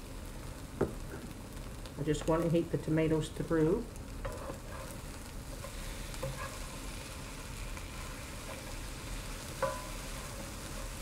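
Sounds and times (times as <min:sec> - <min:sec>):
eggs sizzling in a skillet: 0:00.0 - 0:11.0
spatula scraping a pan: 0:04.2 - 0:11.0
spatula knocking on pan: 0:09.6 - 0:10.0.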